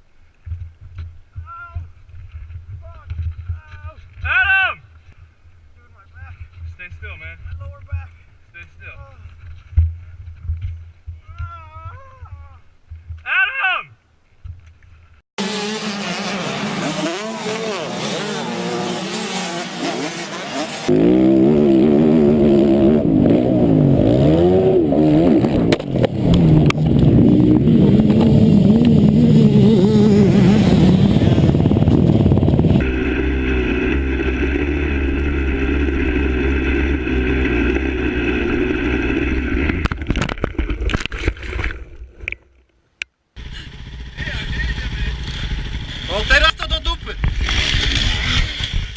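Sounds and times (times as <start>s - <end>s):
dirt bike engines revving: 15.4s - 40.0s, 43.4s - 48.9s.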